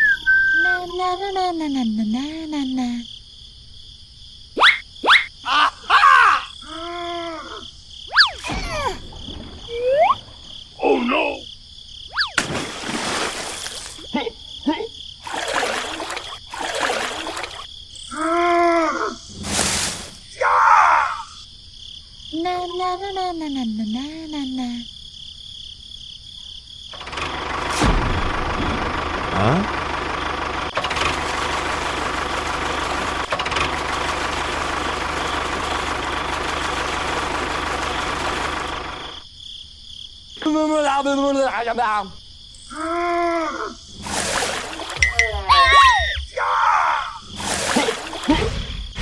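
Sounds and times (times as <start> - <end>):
whistle sweeps: 0.0 - 0.8, 8.1 - 8.5
squeaky gibberish cartoon voices: 0.0 - 2.2, 4.6 - 9.0, 9.7 - 10.2, 45.1 - 47.3
toy tractor motor: 29.3 - 39.2
high background tone: 44.9 - 46.1
pitched voice-like sound: 45.1 - 46.5.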